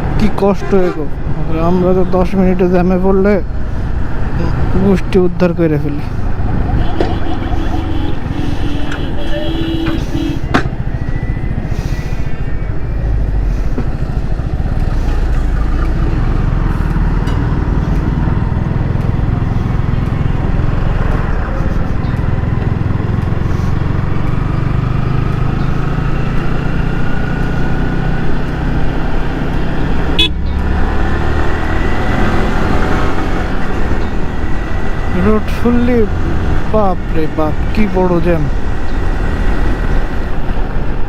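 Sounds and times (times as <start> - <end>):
vehicle horns honking: 0.4 - 1.2, 6.7 - 10.7, 30.1 - 30.4
motorcycle engine running: 12.8 - 30.6.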